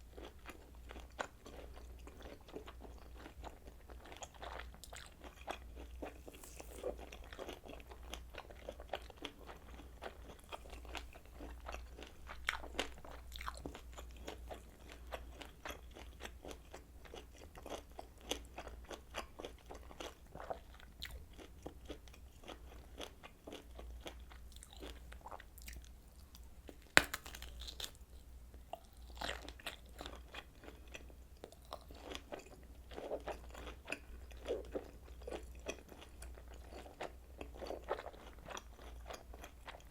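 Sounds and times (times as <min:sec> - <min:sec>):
sausage bites snapping: 0:06.2 - 0:06.9, 0:26.8 - 0:28.0.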